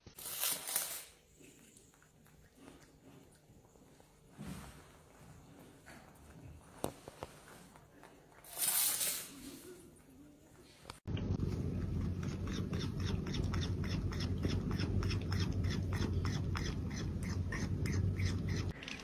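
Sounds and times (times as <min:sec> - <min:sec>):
steady low hum: 0:10.9 - 0:18.8.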